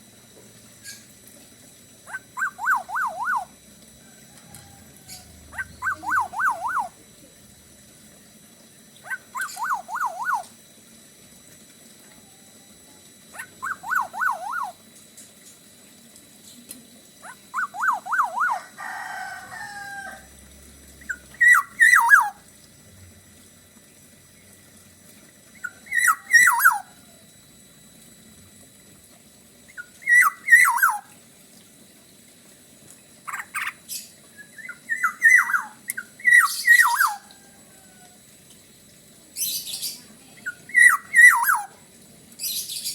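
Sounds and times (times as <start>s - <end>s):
bird singing whistled phrases: 2.1s - 3.5s, 5.6s - 7.0s, 9.1s - 10.5s, 13.4s - 14.8s, 17.5s - 18.6s, 21.1s - 22.4s, 25.6s - 26.9s, 29.8s - 31.1s, 34.0s - 37.3s, 39.4s - 41.7s.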